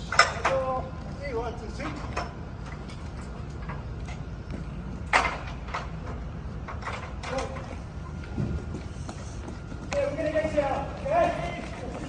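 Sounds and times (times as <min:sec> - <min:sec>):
ladder clanking and knocking: 0:00.0 - 0:00.8, 0:01.7 - 0:04.2, 0:05.0 - 0:07.8.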